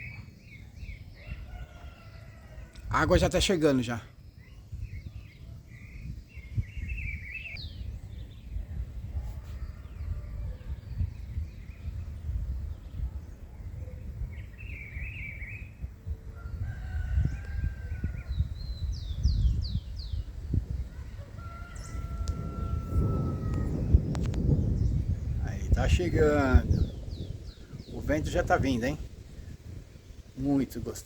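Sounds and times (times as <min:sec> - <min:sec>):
small birds chirping: 0:00.0 - 0:02.7, 0:03.4 - 0:31.0
wind rumble on microphone: 0:00.0 - 0:03.5, 0:04.2 - 0:31.0
rooster crowing: 0:01.2 - 0:02.8, 0:16.3 - 0:18.3, 0:20.9 - 0:24.0.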